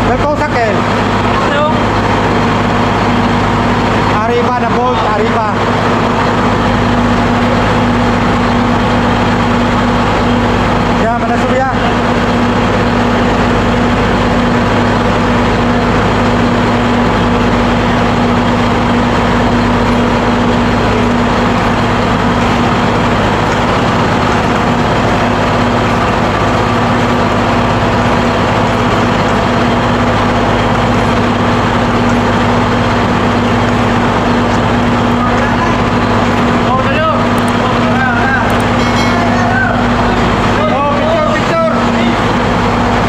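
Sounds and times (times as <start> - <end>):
engine room machinery drone: 0.0 - 43.0.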